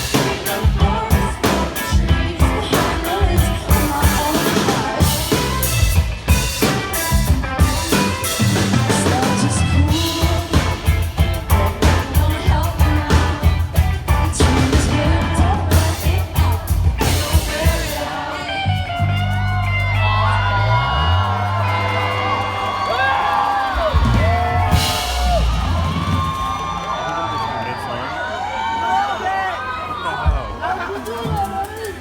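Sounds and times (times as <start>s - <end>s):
woman singing lead vocal: 0.0s - 6.0s, 8.9s - 19.3s
drum kit: 0.0s - 27.4s
live rock band playing: 0.0s - 27.4s.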